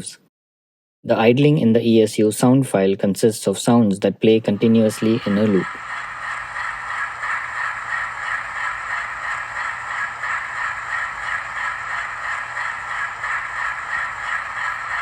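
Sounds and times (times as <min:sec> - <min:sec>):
diesel engine idling through small speaker: 0:04.5 - 0:15.0.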